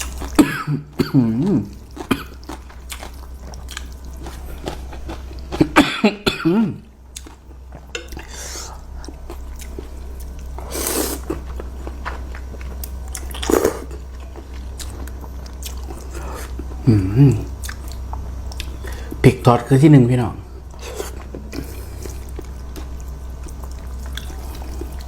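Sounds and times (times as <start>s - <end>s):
person coughing: 0.4s - 2.4s, 5.6s - 6.9s
chewing noodles: 1.5s - 5.8s, 20.8s - 25.0s.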